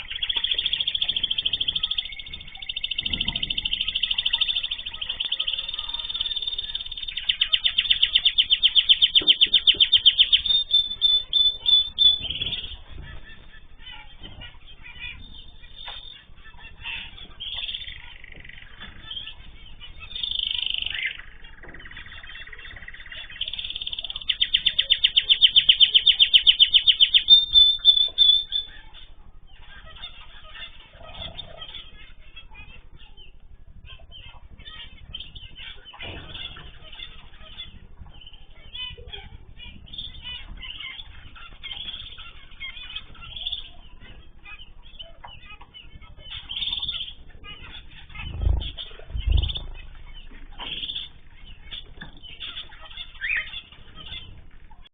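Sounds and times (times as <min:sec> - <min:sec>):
birds fast repeated high notes: 0:00.0 - 0:12.8, 0:19.9 - 0:29.0
bird chirps: 0:00.0 - 0:54.9.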